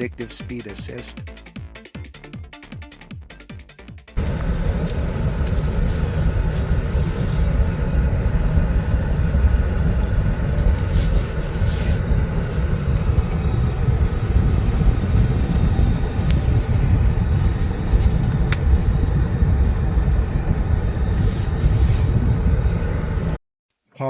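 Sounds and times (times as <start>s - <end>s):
vehicle road and wind noise: 4.2s - 23.4s.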